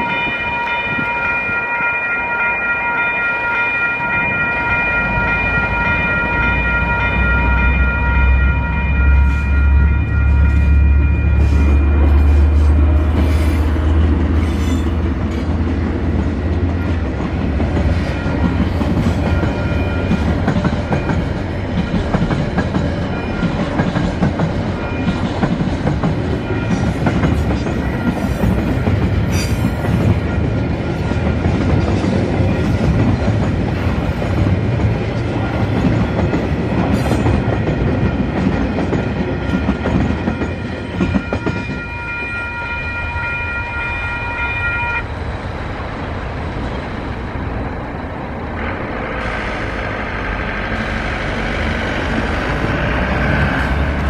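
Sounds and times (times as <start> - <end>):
level crossing bells: 0.0 - 12.2
diesel locomotive drone: 0.0 - 54.0.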